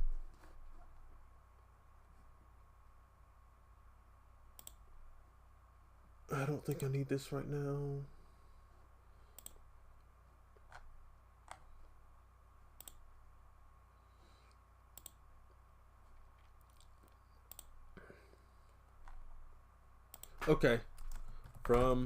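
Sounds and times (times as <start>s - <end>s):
faint electrical hum: 0.0s - 22.0s
computer mouse clicks: 4.5s - 4.8s, 9.3s - 9.6s, 10.6s - 11.7s, 12.8s - 13.0s, 14.5s - 15.2s, 16.4s - 17.8s, 20.1s - 22.0s.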